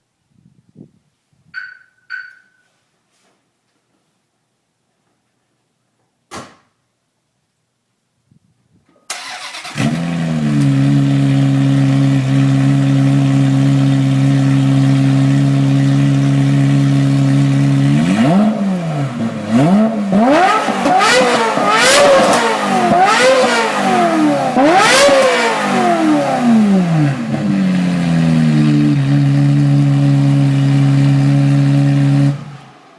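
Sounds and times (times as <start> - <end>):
car engine idling and revving: 9.6 - 32.9.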